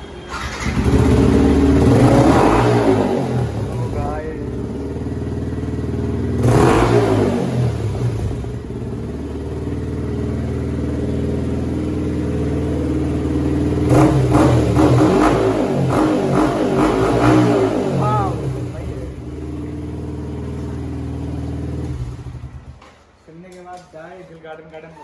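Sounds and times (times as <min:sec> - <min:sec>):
motorcycle engine revving and idling: 0:00.3 - 0:23.2.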